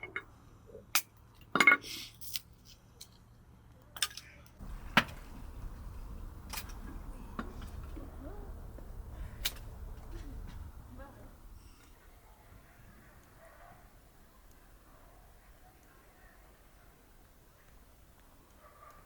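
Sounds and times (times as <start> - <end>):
low steady rumble: 4.6 - 13.1.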